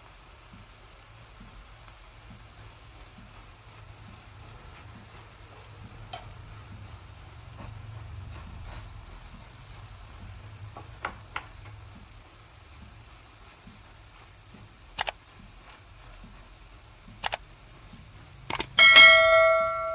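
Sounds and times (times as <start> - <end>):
low steady hum: 0.0 - 19.9
short sharp clicks: 18.5 - 18.7.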